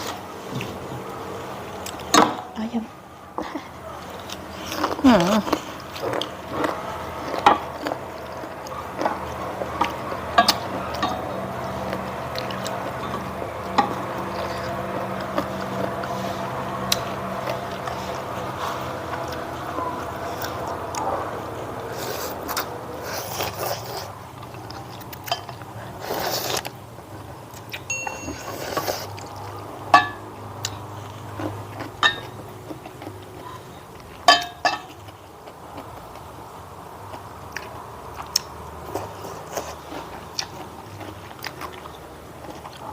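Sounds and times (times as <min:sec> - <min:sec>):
eating sounds: 0:00.0 - 0:42.9
cutlery clinking against dish: 0:34.3 - 0:35.0.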